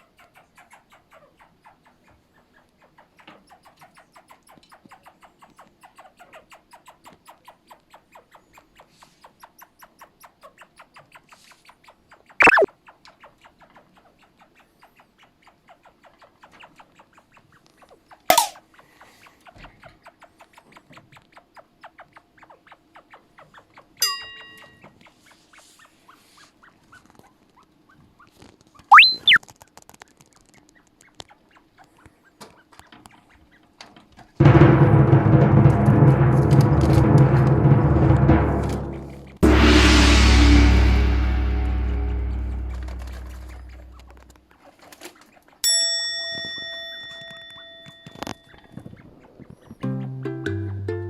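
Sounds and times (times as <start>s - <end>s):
chinchilla chirping: 0.0s - 29.4s, 47.2s - 49.9s.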